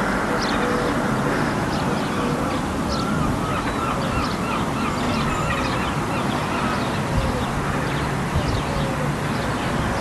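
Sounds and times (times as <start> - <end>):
birds chirping: 0.0 - 10.0
bird yelping calls: 1.8 - 7.5.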